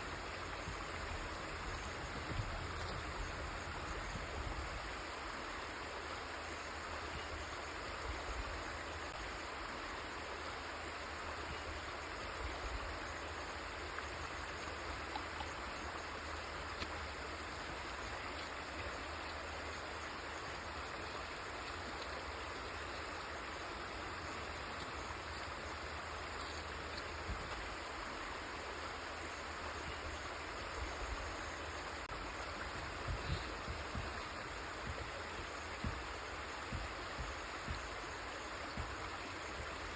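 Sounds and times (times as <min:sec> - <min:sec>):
stream water rushing: 0:00.0 - 0:39.9
low bumps: 0:32.0 - 0:39.9.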